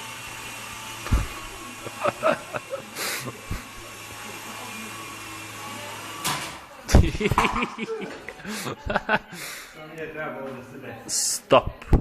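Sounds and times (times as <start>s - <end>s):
rc helicopter rotors whirring: 0.0s - 6.3s.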